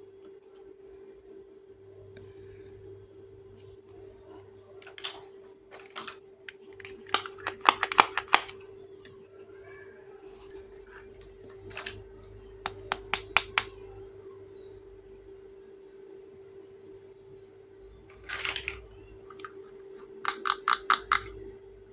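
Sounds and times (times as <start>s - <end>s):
plastic toy pieces clicking: 6.8s - 8.5s, 18.2s - 19.6s, 20.2s - 21.4s.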